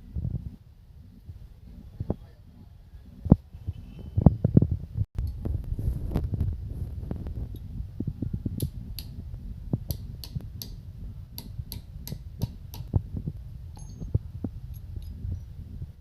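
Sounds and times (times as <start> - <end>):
steady low hum: 0.0 - 16.0
sharp clicks and taps: 8.6 - 9.2, 9.8 - 10.8, 11.4 - 13.0.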